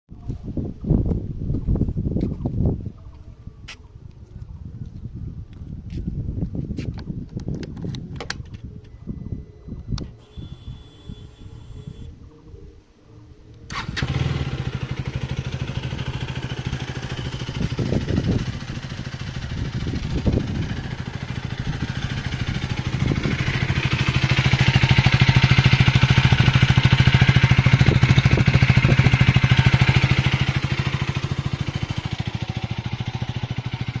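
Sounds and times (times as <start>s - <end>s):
motorcycle engine starting and idling: 13.7s - 34.0s.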